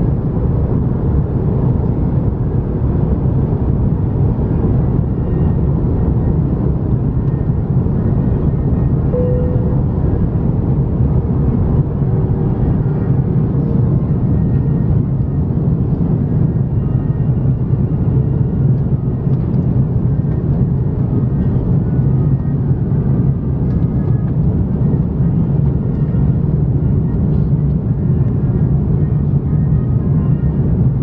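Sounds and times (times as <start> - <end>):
airliner cabin drone: 0.0 - 31.0
faint steady tones: 8.5 - 10.6.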